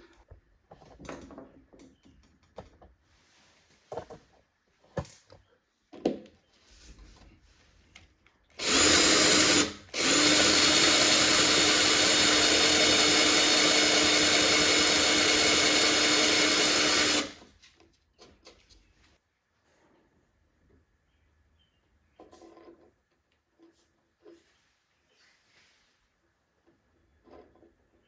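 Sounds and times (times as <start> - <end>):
electric drill drilling wood: 8.6 - 17.4.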